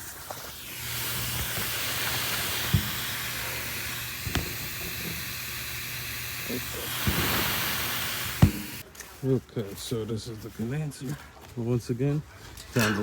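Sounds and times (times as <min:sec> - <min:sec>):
refrigerant hissing from a leak: 0:00.0 - 0:08.8.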